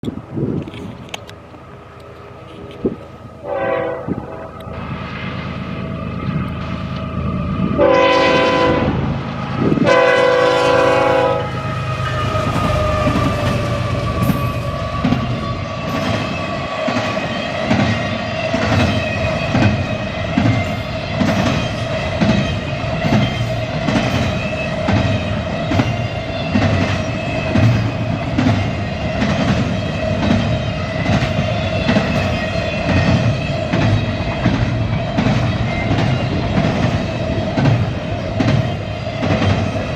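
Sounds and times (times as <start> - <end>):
steady high tone: 1.7 - 39.9
locomotive horn blasts: 3.4 - 4.6, 7.8 - 15.9
train wheels clattering over rail joints: 12.2 - 39.9.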